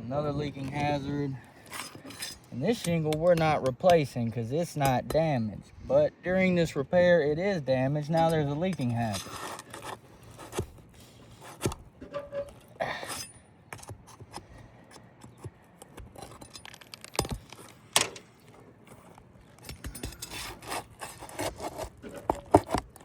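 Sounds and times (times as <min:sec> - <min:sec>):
metal bar scraping under shingles: 0:00.5 - 0:03.7, 0:07.4 - 0:14.5, 0:16.1 - 0:23.0.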